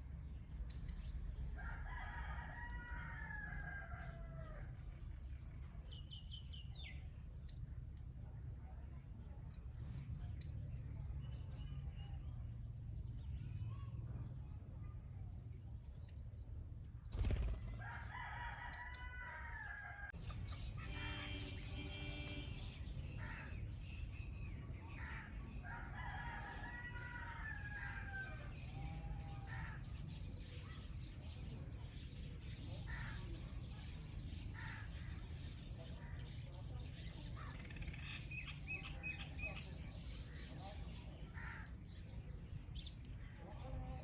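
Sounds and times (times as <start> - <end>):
rooster crowing: 17.8 - 20.1.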